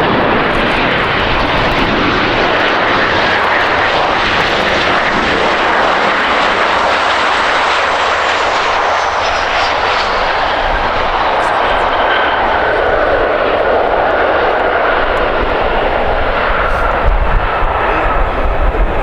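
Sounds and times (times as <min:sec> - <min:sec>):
high engine whine: 0:00.0 - 0:19.0
jet engines roaring: 0:00.0 - 0:19.0.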